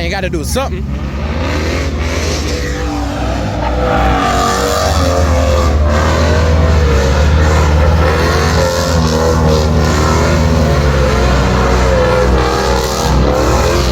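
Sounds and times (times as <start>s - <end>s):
car engine revving: 0.0s - 13.9s.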